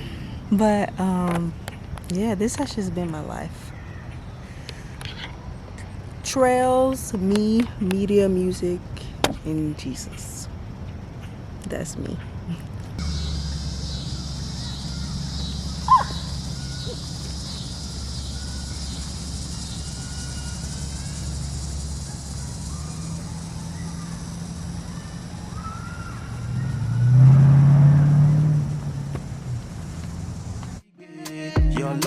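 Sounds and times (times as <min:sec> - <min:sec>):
distant traffic hum: 0:00.0 - 0:30.8
passing vehicle engine rumble: 0:07.6 - 0:30.8
faint bird chirps: 0:11.7 - 0:27.4.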